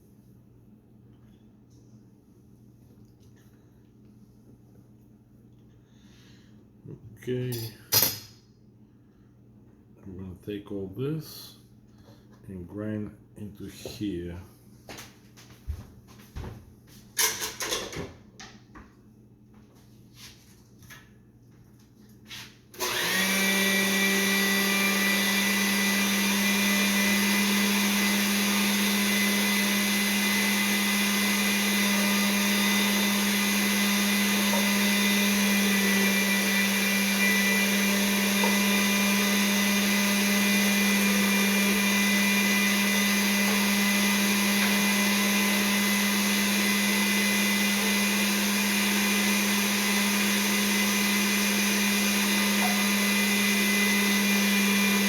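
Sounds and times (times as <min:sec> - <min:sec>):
electric grinder motor running: 0:22.8 - 0:55.0.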